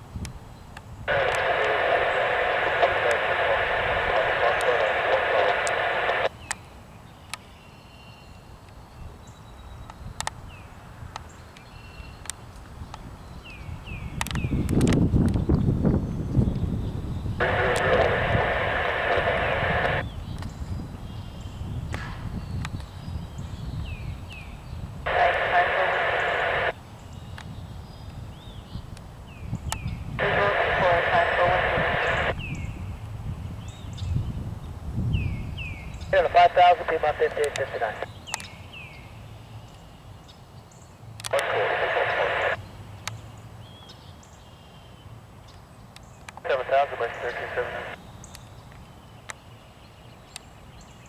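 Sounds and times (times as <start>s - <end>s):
radio transmission voice: 1.1s - 6.3s, 17.4s - 20.0s, 25.1s - 26.8s, 30.2s - 32.4s, 36.0s - 38.1s, 41.3s - 42.6s, 46.4s - 48.0s
sharp clicks: 1.1s - 6.6s, 14.2s - 15.5s, 36.2s - 38.5s, 41.2s - 43.2s.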